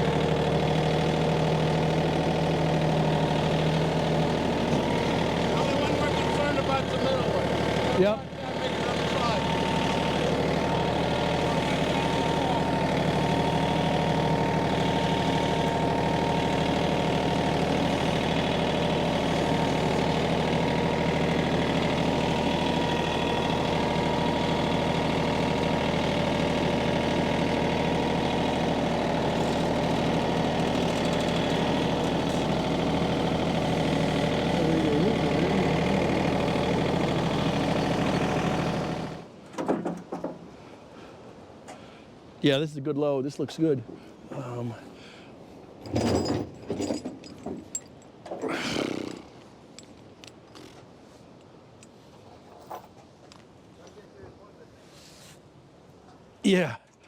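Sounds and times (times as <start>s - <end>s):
tractor engine idling: 0.0s - 39.4s.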